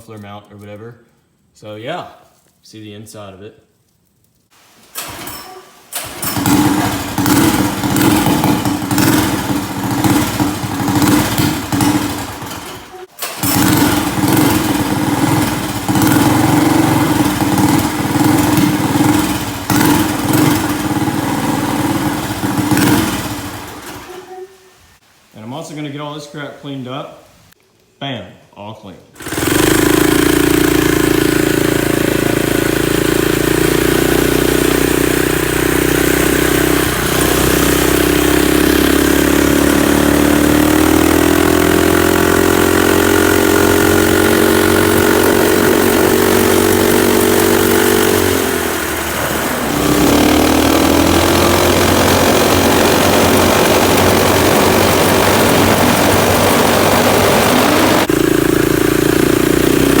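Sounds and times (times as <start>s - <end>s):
atv engine running loudly: 6.0s - 24.1s, 29.2s - 60.0s.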